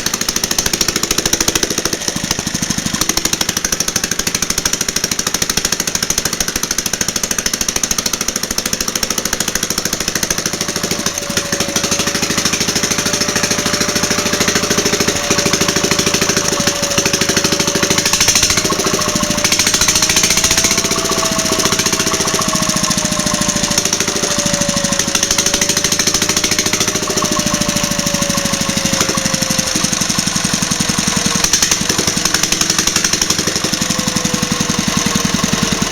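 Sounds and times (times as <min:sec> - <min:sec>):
engine knocking rhythmically: 0:00.0 - 0:35.9.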